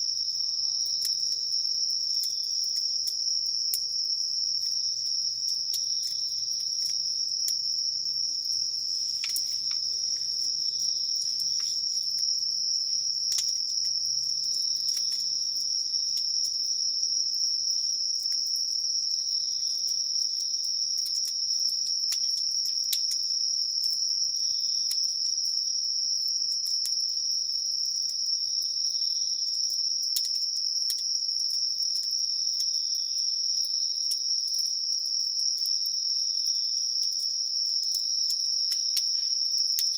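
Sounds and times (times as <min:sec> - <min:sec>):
insects chirring: 0:00.0 - 0:39.9
campfire crackles: 0:00.2 - 0:28.9, 0:29.6 - 0:32.8.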